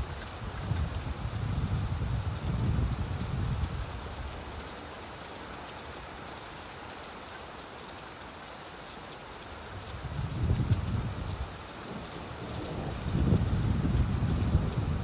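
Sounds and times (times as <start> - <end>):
steady rain falling: 0.0 - 15.0
low rumble of thunder: 10.0 - 15.0.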